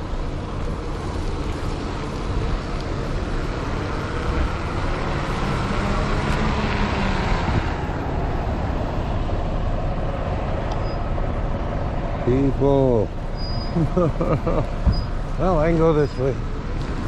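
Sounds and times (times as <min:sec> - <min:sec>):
street traffic: 0:00.0 - 0:17.0
vehicle passing: 0:00.9 - 0:17.0
wind on microphone: 0:04.0 - 0:08.3.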